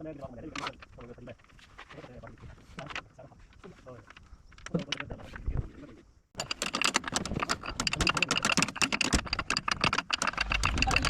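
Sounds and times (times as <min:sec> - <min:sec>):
rapid clicking and tapping: 0:06.4 - 0:11.0.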